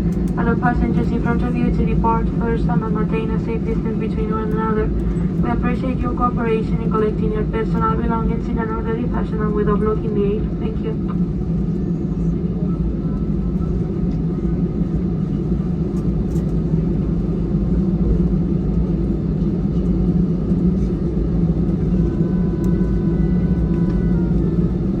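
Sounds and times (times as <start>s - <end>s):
aircraft cabin hum: 0.0s - 25.0s.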